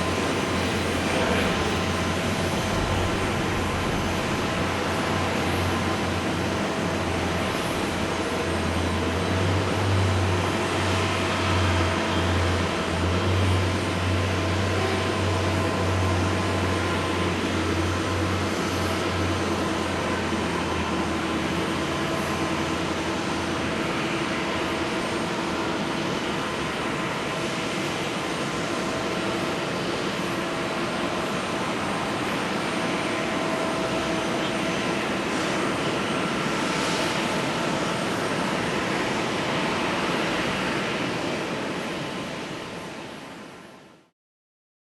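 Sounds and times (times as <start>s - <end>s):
jet engine roar with whining tones: 0.0s - 44.1s
low rumble: 1.1s - 5.3s.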